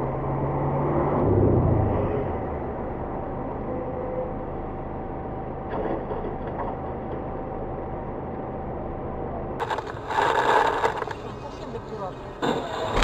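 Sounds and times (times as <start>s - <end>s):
car driving rumble: 0.0s - 13.0s
faint constant whine: 2.6s - 13.0s.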